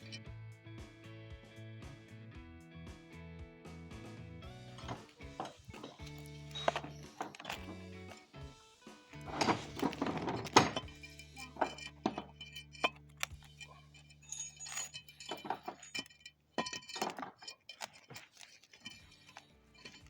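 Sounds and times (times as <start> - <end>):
metal tools clinking: 4.8 - 8.3, 9.0 - 20.0.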